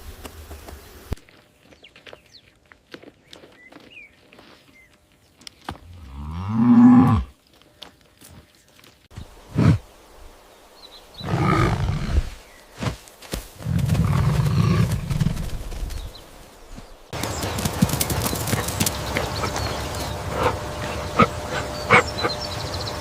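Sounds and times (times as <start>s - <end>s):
large animal deep calls: 19.2s - 22.5s.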